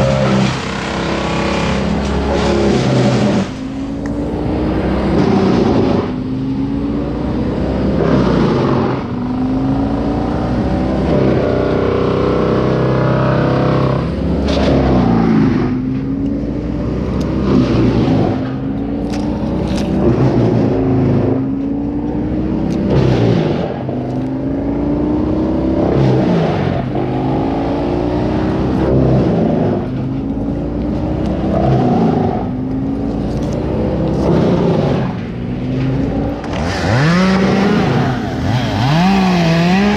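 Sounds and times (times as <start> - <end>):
petrol engine running: 0.0 - 12.0.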